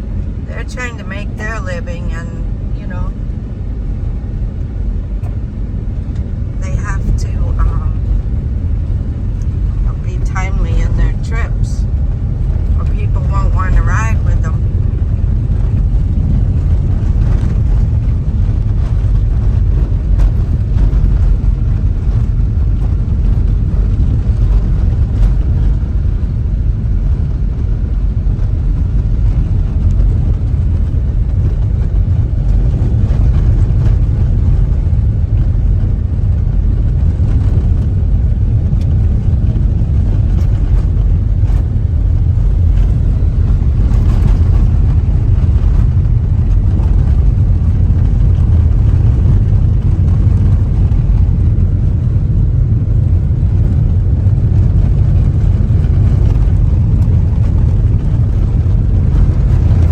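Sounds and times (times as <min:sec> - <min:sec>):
car tyre and road noise: 0:00.0 - 0:59.9.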